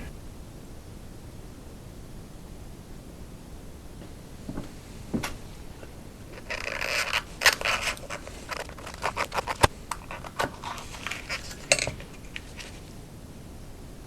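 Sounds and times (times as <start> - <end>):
oil filter scraping and rustling: 4.4 - 13.0
sharp clicks of metal canister: 6.4 - 12.9.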